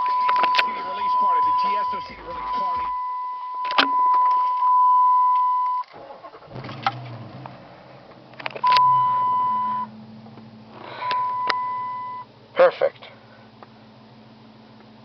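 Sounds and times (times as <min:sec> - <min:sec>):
dashboard warning chime: 0:00.0 - 0:05.9, 0:08.6 - 0:09.9, 0:10.9 - 0:12.3
car engine starting and idling: 0:05.5 - 0:15.0.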